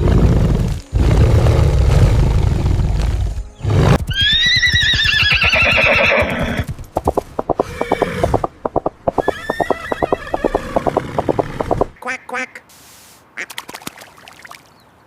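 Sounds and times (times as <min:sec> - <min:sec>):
deep rough rumbling: 0:00.0 - 0:04.1
horse whinnying: 0:04.0 - 0:11.9.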